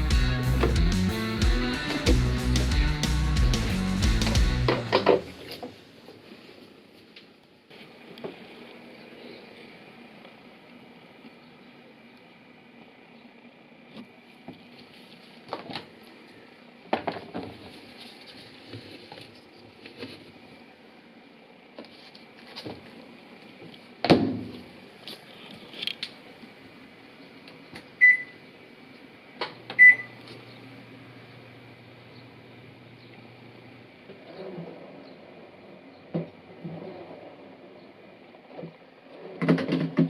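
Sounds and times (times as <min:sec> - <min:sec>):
washing machine short beeps: 0:28.0 - 0:28.4, 0:29.8 - 0:30.2.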